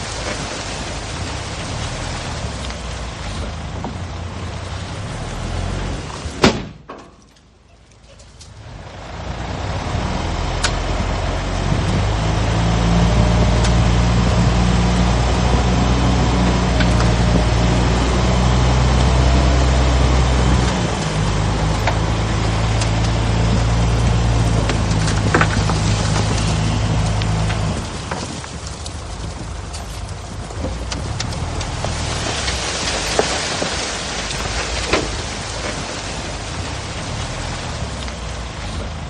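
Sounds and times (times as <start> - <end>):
heavy diesel engine running: 8.5 - 39.0.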